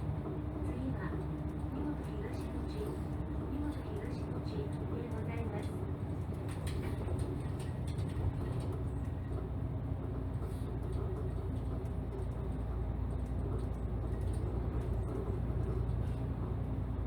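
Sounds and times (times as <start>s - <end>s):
bus engine drone: 0.0s - 17.0s
road noise: 0.0s - 17.0s.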